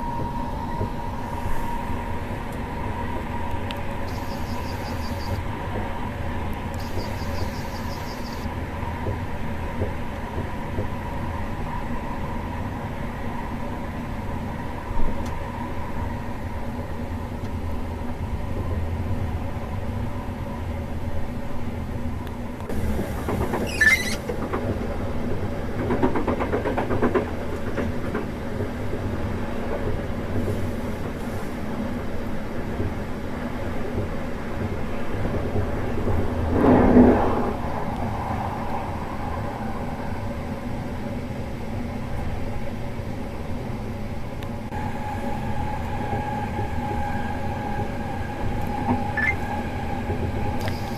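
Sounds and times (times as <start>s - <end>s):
train rumbling on rails: 0.0s - 50.9s
wavering squeal: 4.0s - 5.4s, 6.8s - 8.5s, 23.6s - 24.2s, 44.8s - 50.9s.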